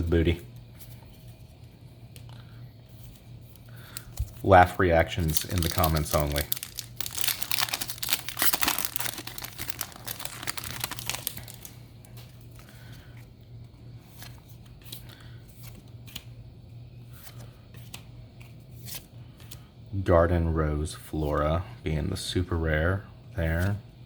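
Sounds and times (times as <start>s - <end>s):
foil wrapper crinkling and tearing: 5.1s - 11.8s
cards ticking and rustling: 5.1s - 13.3s.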